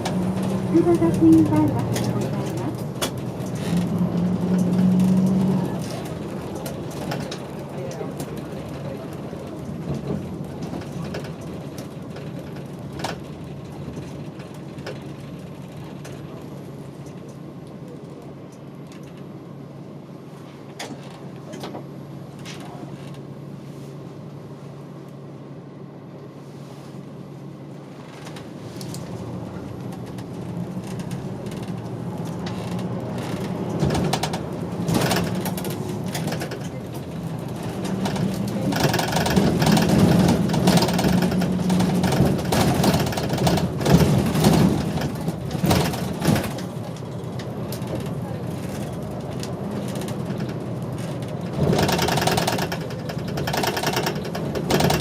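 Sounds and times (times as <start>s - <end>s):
bus engine hum: 0.0s - 55.0s
road noise: 0.0s - 55.0s
short rattles and clicks: 29.9s - 55.0s.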